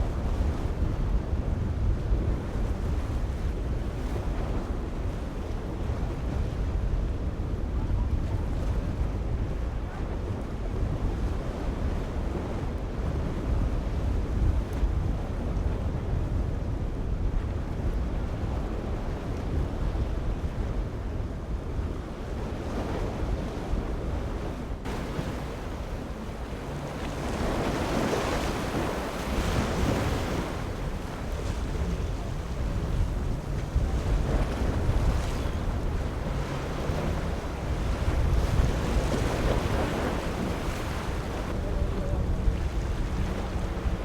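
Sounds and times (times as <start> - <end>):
wind buffeting microphone: 0.0 - 44.0
surf rushing: 24.8 - 44.0.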